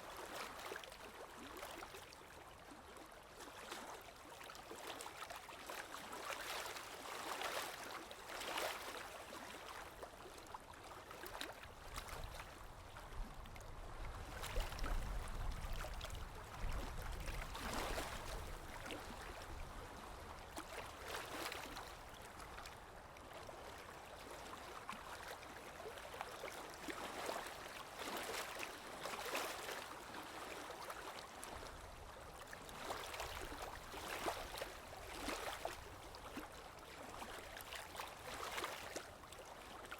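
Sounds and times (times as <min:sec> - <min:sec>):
water flowing and splashing: 0:14.0 - 0:21.9, 0:25.0 - 0:39.9.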